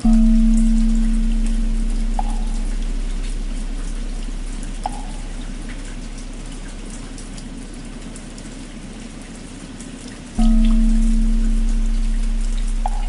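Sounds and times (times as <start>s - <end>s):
temple bell hum: 0.0s - 6.8s, 10.4s - 13.0s
steady rain: 0.0s - 13.0s.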